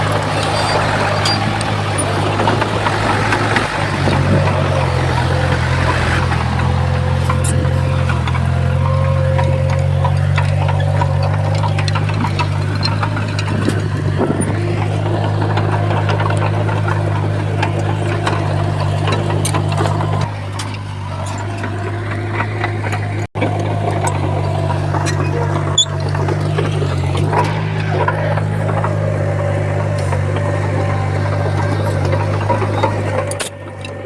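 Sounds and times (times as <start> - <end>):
clicks and knocks: 0.0 - 34.0
heavy diesel engine running: 0.0 - 34.0.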